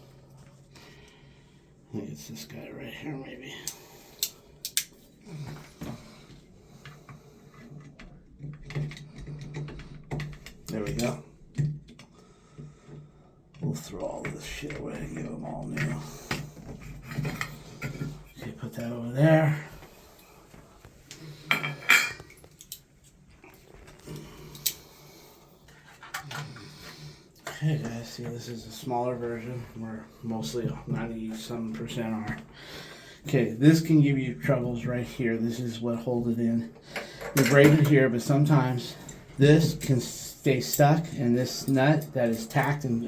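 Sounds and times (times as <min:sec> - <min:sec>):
hand tools tapping and scraping: 0:03.6 - 0:19.1, 0:19.7 - 0:28.6, 0:36.8 - 0:38.0.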